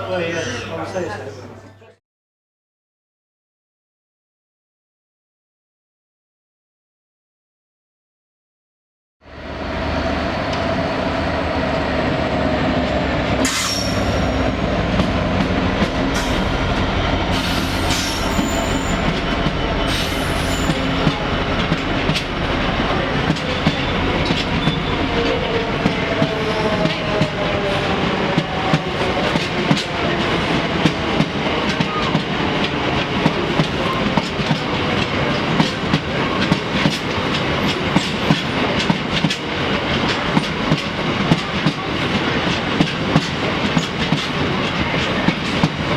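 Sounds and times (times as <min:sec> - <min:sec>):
train wheels clicking over rail joints: 0:28.3 - 0:45.9.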